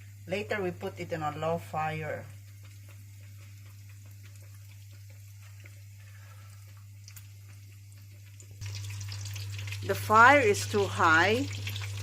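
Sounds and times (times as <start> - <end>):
chicken frying in hot oil: 0.0 - 12.0
small crackles of oil: 2.3 - 10.8.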